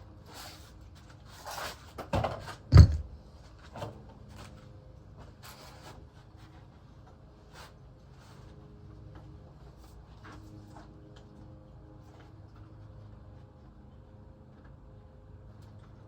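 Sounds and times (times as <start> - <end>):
knocks and clunks: 2.1 - 3.2
thud: 2.7 - 3.1.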